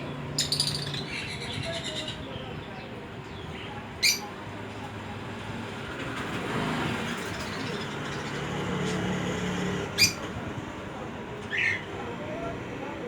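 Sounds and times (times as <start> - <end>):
baby bird chirp: 0.4 - 2.2, 4.0 - 4.3, 10.0 - 10.2.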